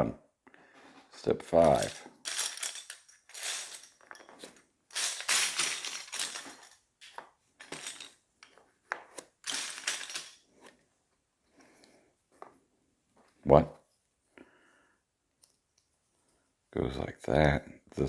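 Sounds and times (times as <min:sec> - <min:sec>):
plastic pieces clattering: 0:01.5 - 0:10.5.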